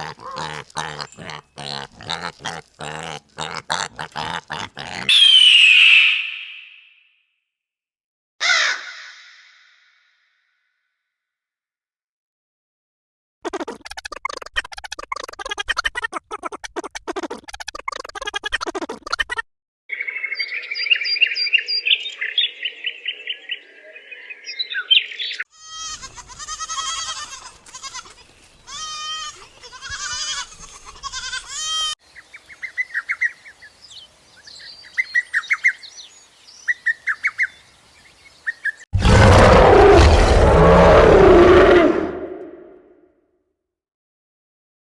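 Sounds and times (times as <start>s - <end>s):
loud rough animal call: 0.0s - 5.2s, 39.0s - 42.8s
birds chirping: 0.0s - 6.8s, 19.9s - 25.4s, 32.0s - 41.2s
pitch-bending animal calls: 0.0s - 7.0s.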